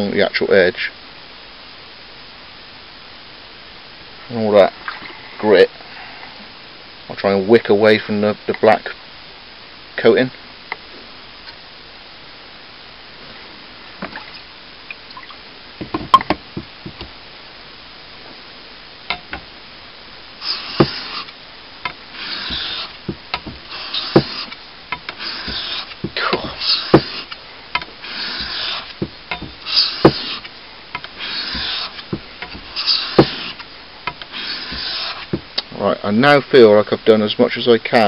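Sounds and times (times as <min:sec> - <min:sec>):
blade scraping on whetstone: 0:20.4 - 0:21.3, 0:22.1 - 0:35.4.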